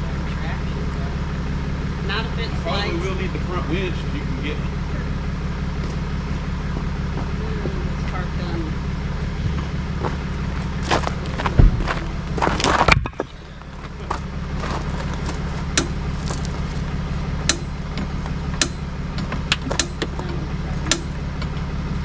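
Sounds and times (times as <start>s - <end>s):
vehicle engine idling: 0.0s - 22.0s
rushing clatter: 9.1s - 20.3s
sharp clicks and knocks: 11.1s - 21.7s.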